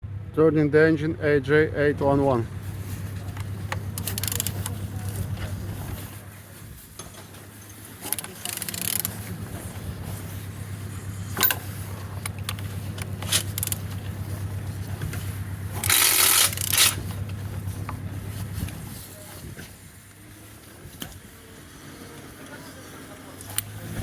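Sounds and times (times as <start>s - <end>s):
steady low hum: 0.0s - 22.4s
engine turned over by hand: 2.0s - 20.2s, 23.4s - 24.0s.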